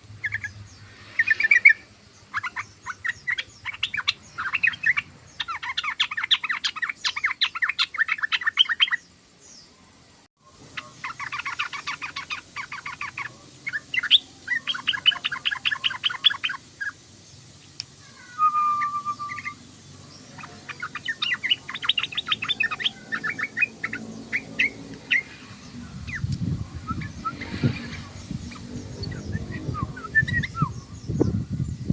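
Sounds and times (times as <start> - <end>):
bird chattering: 0.2 - 9.0, 10.6 - 17.0, 18.0 - 31.2
whistled bird note: 18.2 - 19.6, 26.2 - 31.0.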